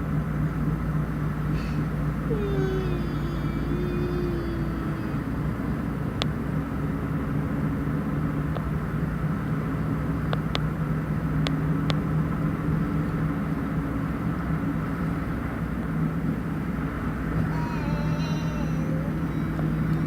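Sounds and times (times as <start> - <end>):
motor droning: 1.6 - 6.0, 17.1 - 20.0.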